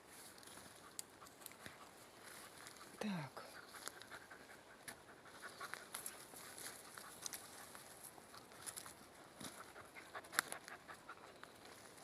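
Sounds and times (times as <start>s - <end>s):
footsteps crunching through undergrowth: 0.0s - 3.0s, 4.8s - 10.8s.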